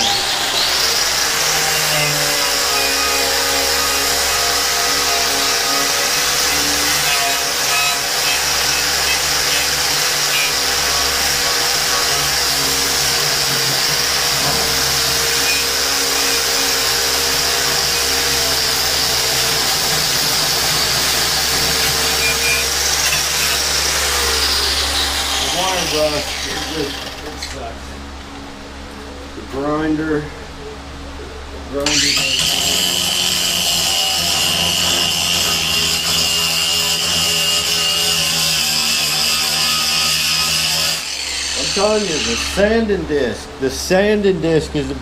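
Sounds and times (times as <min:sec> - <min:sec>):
angle grinder whine: 0:00.0 - 0:28.5, 0:31.7 - 0:45.0.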